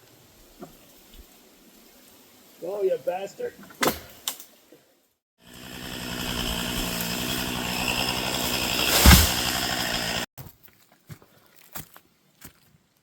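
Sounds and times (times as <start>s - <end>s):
chainsaw running at high revs: 5.4s - 10.3s
heavy low thud: 8.9s - 9.5s.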